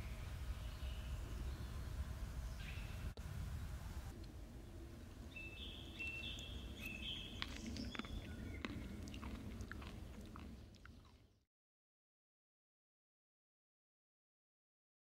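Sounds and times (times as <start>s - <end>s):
person chewing crunchy salad: 6.7s - 11.4s.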